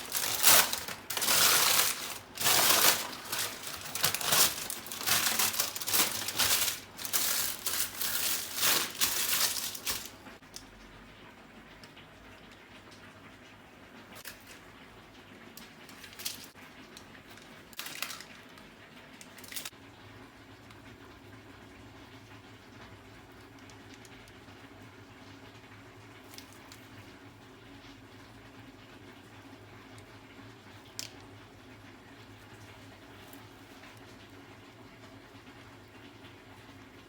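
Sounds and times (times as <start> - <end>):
wrapper crinkling and rustling: 0.0 - 10.3, 15.9 - 16.6, 17.7 - 19.7.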